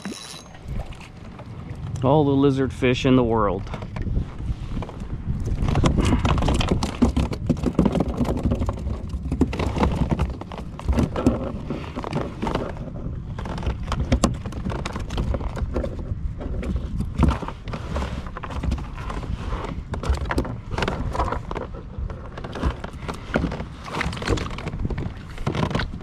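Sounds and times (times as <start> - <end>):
wind rumble on microphone: 0.0 - 26.0
irregular clicks and clatter: 4.8 - 26.0.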